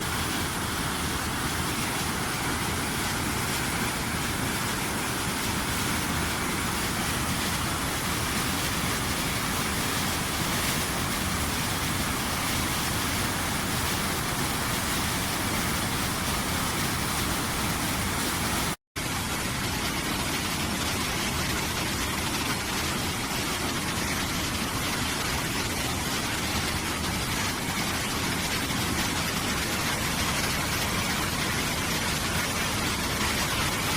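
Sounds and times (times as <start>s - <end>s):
waterfall rushing: 0.0s - 18.8s.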